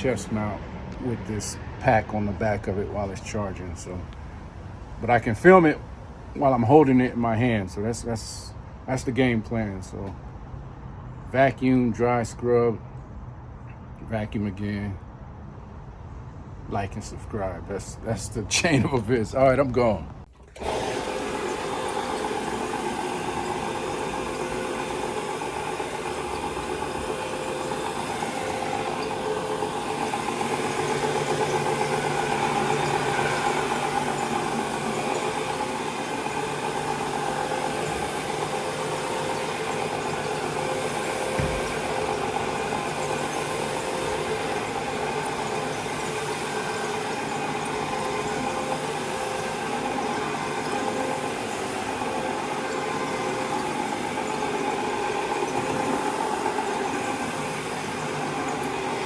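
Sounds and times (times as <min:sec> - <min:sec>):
power washer running: 0:00.0 - 0:04.2, 0:20.3 - 0:59.0
vacuum cleaner on carpet: 0:20.4 - 0:59.0
low thump: 0:41.4 - 0:41.9.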